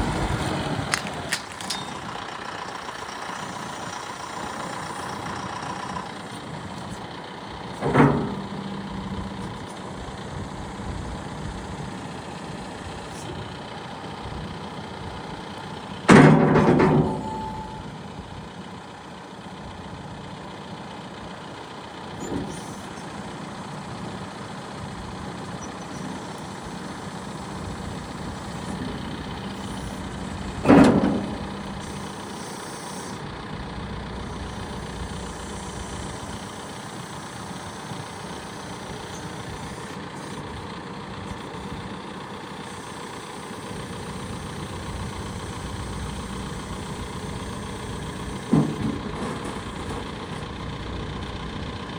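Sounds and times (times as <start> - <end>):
diesel engine idling: 0.0 - 51.9
loud clunk: 7.7 - 9.6, 16.0 - 18.0, 25.6 - 32.8, 45.1 - 50.7.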